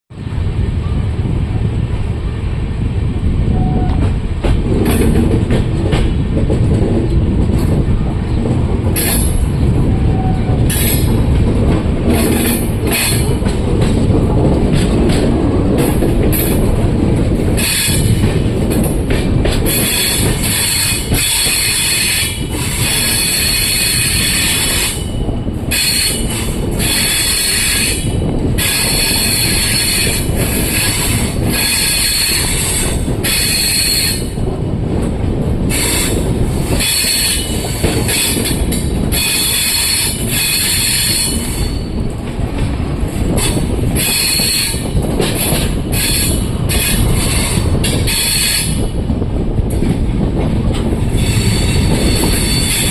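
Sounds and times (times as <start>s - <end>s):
wheels rumbling on track: 0.1s - 52.9s
train wheels squealing: 19.6s - 34.3s, 35.7s - 42.0s, 43.4s - 48.8s, 51.2s - 52.9s.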